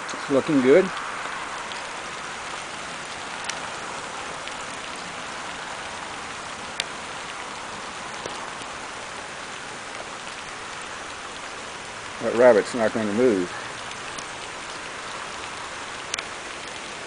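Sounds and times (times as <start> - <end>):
light rain hiss: 0.0 - 17.0
sharp drip ticks: 0.0 - 17.0.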